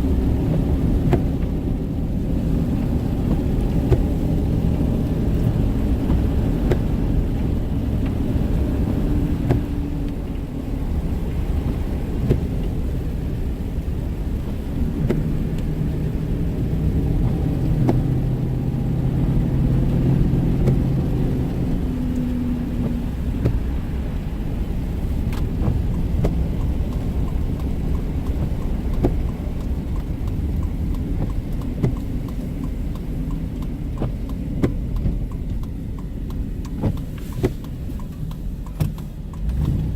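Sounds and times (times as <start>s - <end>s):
car engine and road rumble: 0.0s - 39.9s
faint ticks: 25.3s - 39.9s.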